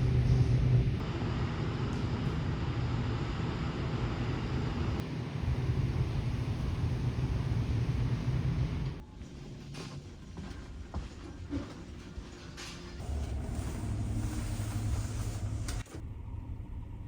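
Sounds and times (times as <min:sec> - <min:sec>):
ship engine drone: 0:00.0 - 0:09.2, 0:13.0 - 0:17.0.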